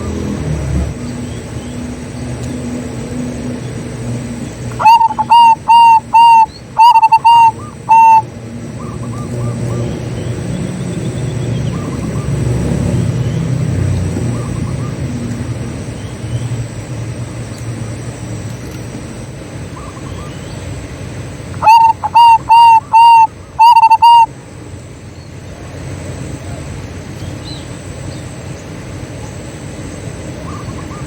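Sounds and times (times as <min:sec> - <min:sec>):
faint doves calling: 0:03.7 - 0:16.8, 0:19.5 - 0:31.0
dove cooing: 0:04.7 - 0:09.8, 0:21.6 - 0:24.3.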